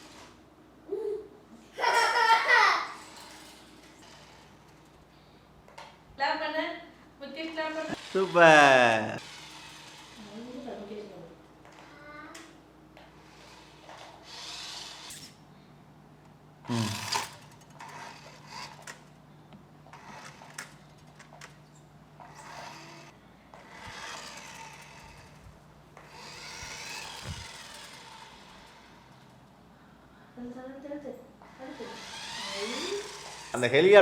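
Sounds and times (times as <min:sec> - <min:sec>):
toy car motor whirring: 0:00.0 - 0:00.4, 0:01.8 - 0:05.0, 0:07.5 - 0:12.6, 0:13.2 - 0:15.4, 0:16.7 - 0:19.2, 0:19.9 - 0:21.6, 0:22.2 - 0:29.5, 0:31.4 - 0:34.0.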